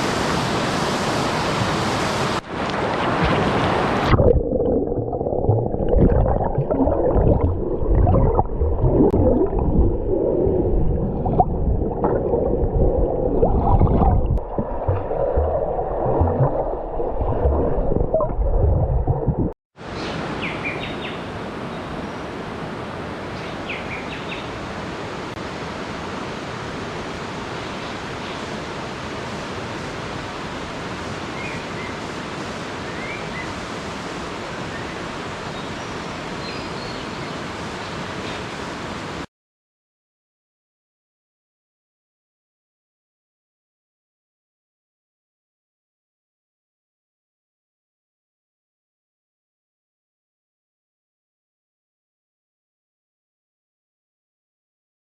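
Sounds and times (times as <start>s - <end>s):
waterfall rushing: 0.0s - 4.2s
low rumbling and gurgling: 3.1s - 19.6s.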